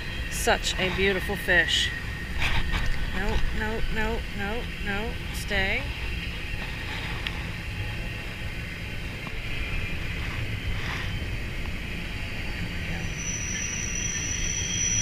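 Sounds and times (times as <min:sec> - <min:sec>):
freight train rumbling past: 0:00.0 - 0:15.0
high-pitched wheel squeal: 0:09.4 - 0:15.0.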